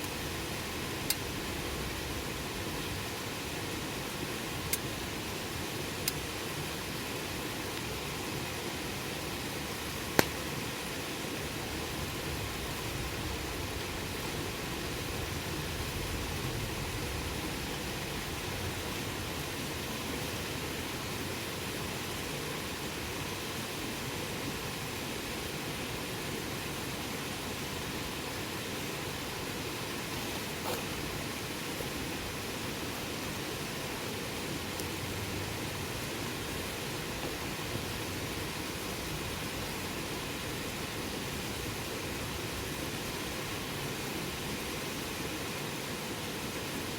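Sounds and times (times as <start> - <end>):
campfire hissing: 0.0 - 46.9
faint pop from burning wood: 10.2 - 10.4.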